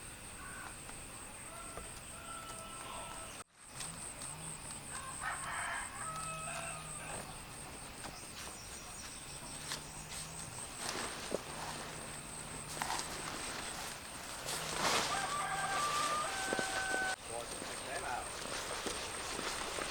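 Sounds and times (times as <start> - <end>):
rooster crowing: 1.4 - 3.4, 4.9 - 7.4, 14.5 - 17.2.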